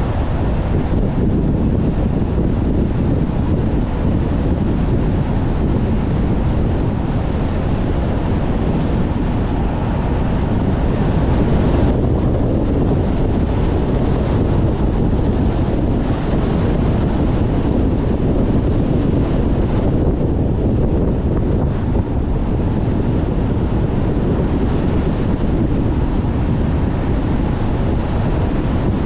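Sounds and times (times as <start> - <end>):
car driving: 0.0 - 19.7
wind buffeting microphone: 0.0 - 29.0.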